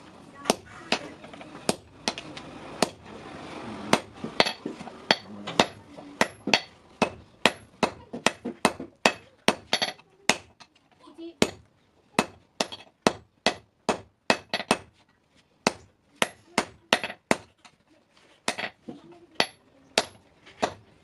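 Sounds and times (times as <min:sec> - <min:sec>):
hammer striking steel on anvil: 0:03.9 - 0:10.6, 0:12.2 - 0:14.9, 0:15.6 - 0:17.5.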